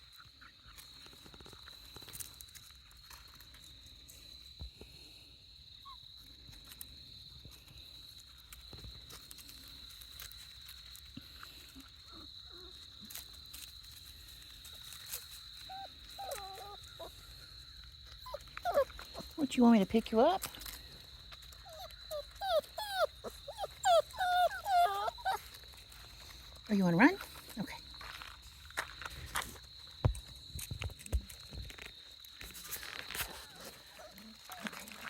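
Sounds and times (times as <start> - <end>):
rustles and steps: 6.2 - 35.0
puppy whimpering: 15.6 - 17.2, 18.2 - 19.5, 21.6 - 25.6, 33.4 - 35.0.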